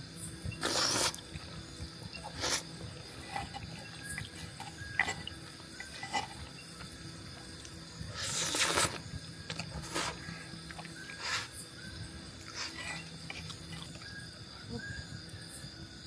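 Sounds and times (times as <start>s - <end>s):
noodle slurping: 0.6s - 1.3s, 8.1s - 9.0s
person chewing: 0.6s - 1.4s, 8.1s - 11.5s.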